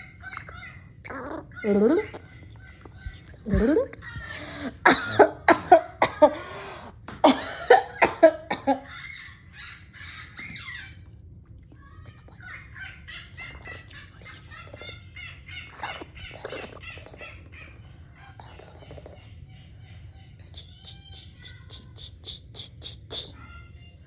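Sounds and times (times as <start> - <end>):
parrot squawking: 0.0 - 4.8, 12.3 - 19.1
parrot high-pitched chattering: 0.0 - 5.2, 8.8 - 11.1, 11.8 - 23.8.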